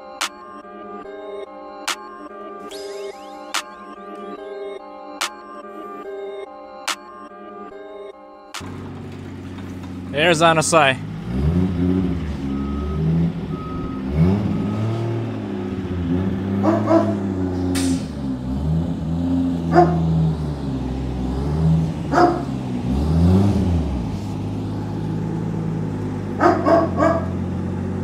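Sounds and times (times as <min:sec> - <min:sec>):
car engine running: 0:08.6 - 0:28.0
dog barking: 0:16.6 - 0:17.3, 0:19.6 - 0:20.1, 0:22.1 - 0:22.6, 0:26.4 - 0:27.4.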